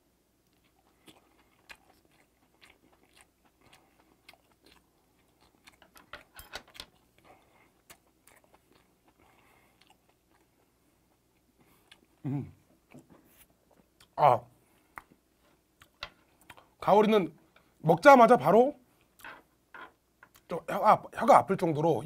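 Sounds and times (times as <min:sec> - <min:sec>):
soft chewing clicks: 0:00.4 - 0:12.2, 0:12.8 - 0:16.8, 0:20.2 - 0:20.5.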